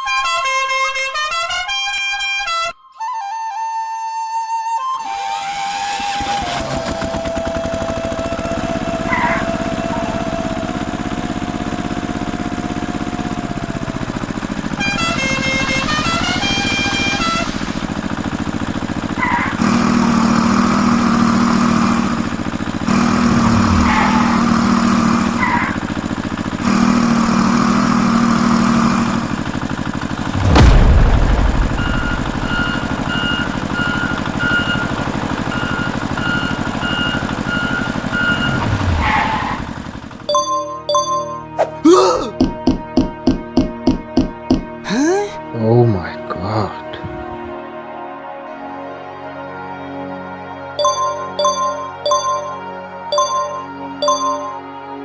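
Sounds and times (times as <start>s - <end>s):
flute-like music: 1.4s - 6.6s, 50.8s - 55.0s
small machine whining: 5.1s - 41.6s
low steady drone: 23.0s - 26.0s, 30.1s - 33.9s.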